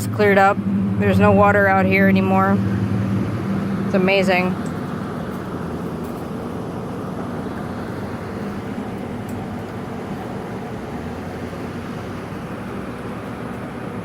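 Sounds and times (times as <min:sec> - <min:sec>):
faint hum: 0:00.0 - 0:05.0
low rumbling noise: 0:00.0 - 0:14.0.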